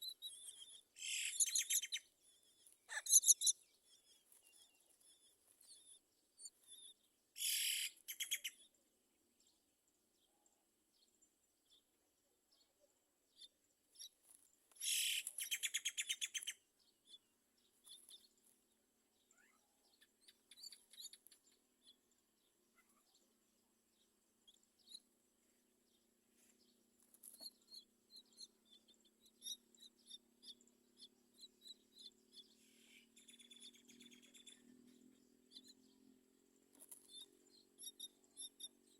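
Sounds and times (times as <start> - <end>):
short bird chirps: 0.0 - 8.6, 14.8 - 17.2.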